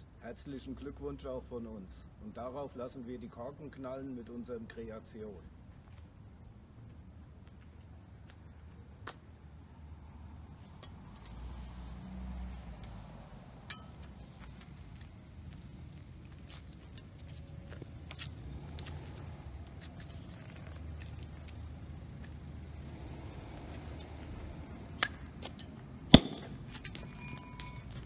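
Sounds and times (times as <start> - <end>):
foil and wire clicks and crinkles: 19.8 - 21.7.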